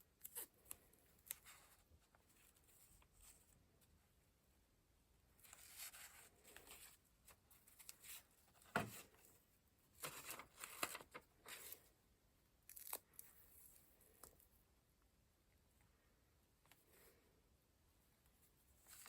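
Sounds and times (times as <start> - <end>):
paper rustling and scraping: 5.4 - 9.3, 10.0 - 11.9.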